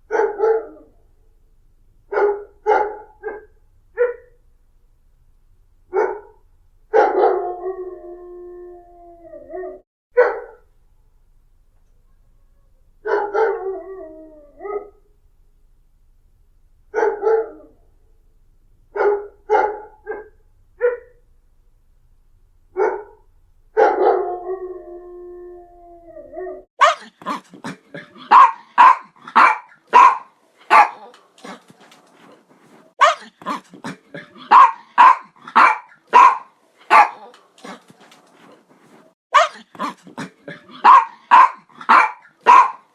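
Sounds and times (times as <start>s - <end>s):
dog barking and howling: 0.1s - 1.1s, 2.1s - 4.4s, 5.9s - 10.6s, 13.0s - 15.1s, 16.9s - 18.0s, 18.9s - 21.2s, 22.7s - 27.0s, 28.2s - 31.1s, 34.4s - 37.3s, 40.7s - 42.9s.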